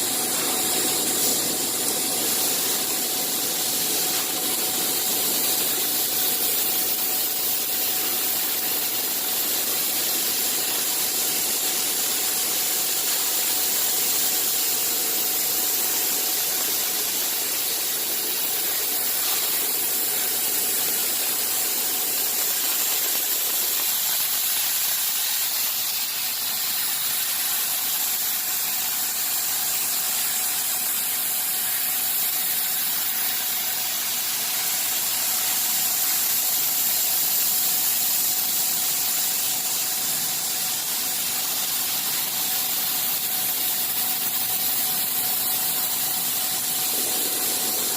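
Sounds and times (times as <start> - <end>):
low machine noise: 0.0 - 47.9
machine hiss and whine: 0.0 - 47.9.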